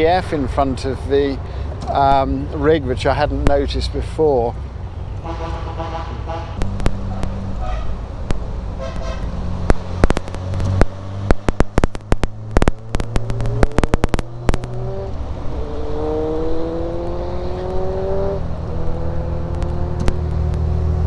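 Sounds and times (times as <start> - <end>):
car engine accelerating: 0.0 - 21.0
crackles and knocks on microphone: 6.6 - 15.2, 17.6 - 21.0.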